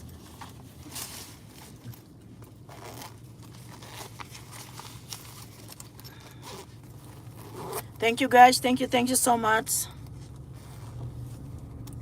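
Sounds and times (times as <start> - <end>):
rustling: 0.0 - 7.9.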